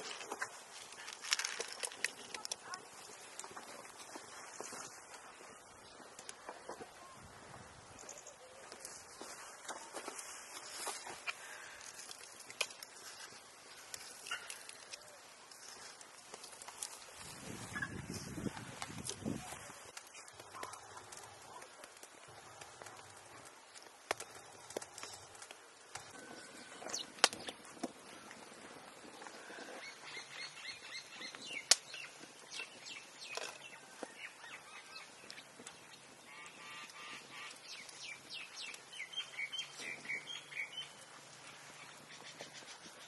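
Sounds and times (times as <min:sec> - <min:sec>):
birds chirping: 0:07.9 - 0:16.1, 0:17.4 - 0:43.0.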